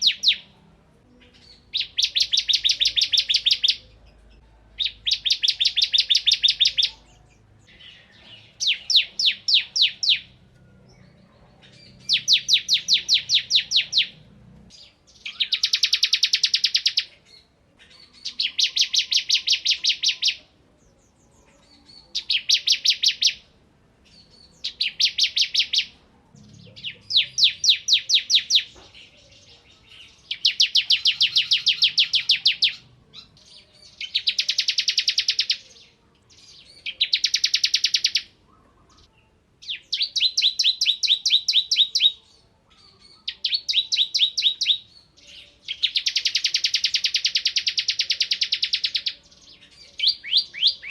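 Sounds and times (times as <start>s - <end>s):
bird singing sharp chip notes: 24.1s - 38.3s.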